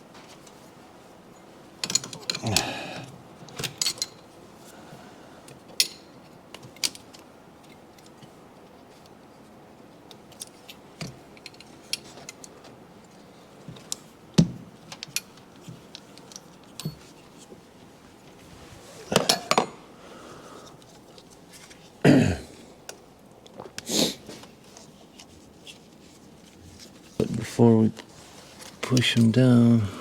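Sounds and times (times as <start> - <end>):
tools and metal parts clinking: 1.8 - 2.7, 3.5 - 4.3, 14.9 - 17.2.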